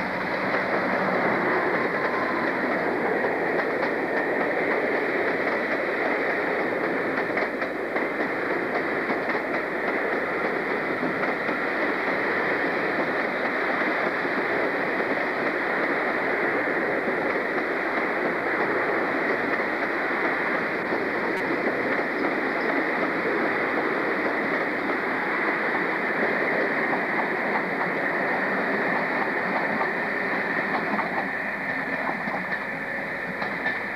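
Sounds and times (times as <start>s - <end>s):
train rumbling on rails: 0.0s - 33.9s.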